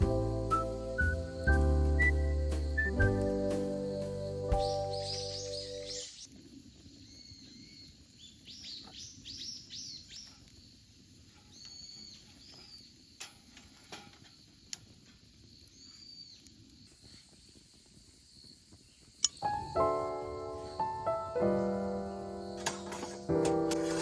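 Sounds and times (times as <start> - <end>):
songbirds chirping: 0.0 - 13.2, 14.2 - 24.0
outdoor background noise: 0.0 - 24.0
sharp clicks: 19.2 - 19.4.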